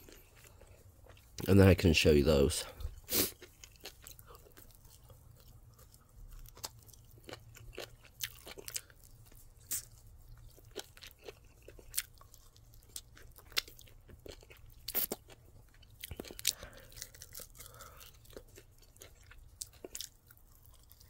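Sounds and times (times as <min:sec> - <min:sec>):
person chewing crunchy food: 0:00.0 - 0:01.7, 0:02.3 - 0:21.0.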